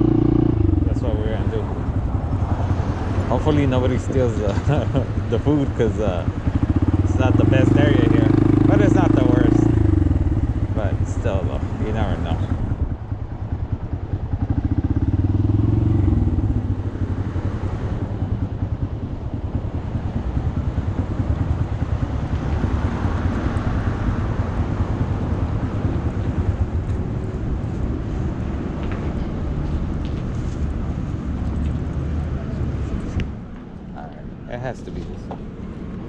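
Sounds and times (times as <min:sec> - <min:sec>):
small motorcycle engine running: 0:00.0 - 0:12.7.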